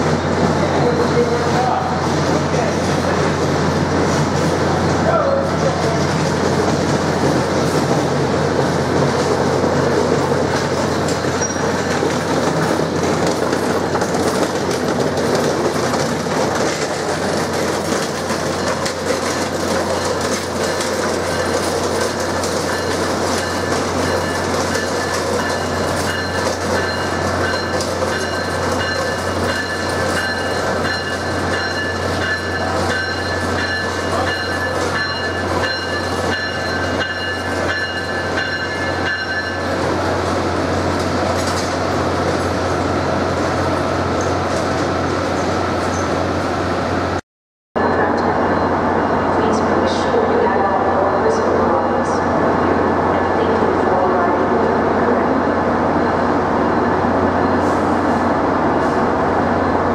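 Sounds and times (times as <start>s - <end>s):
train wheels clicking over rail joints: 5.9s - 39.8s.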